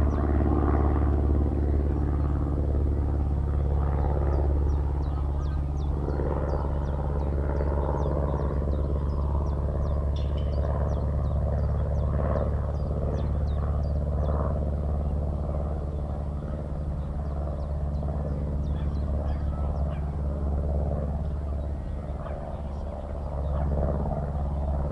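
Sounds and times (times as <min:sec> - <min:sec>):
low engine drone: 0:00.0 - 0:24.9
skylark singing: 0:17.0 - 0:20.3.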